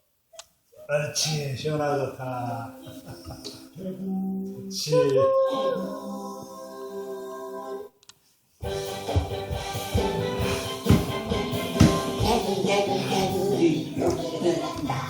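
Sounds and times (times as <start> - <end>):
music with a beat: 8.6 - 15.0.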